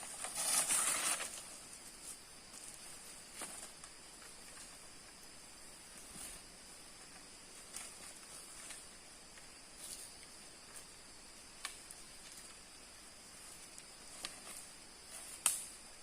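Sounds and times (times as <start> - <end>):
forest insects buzzing: 0.0 - 16.0
light rustles and snaps: 11.6 - 12.6, 13.6 - 15.8.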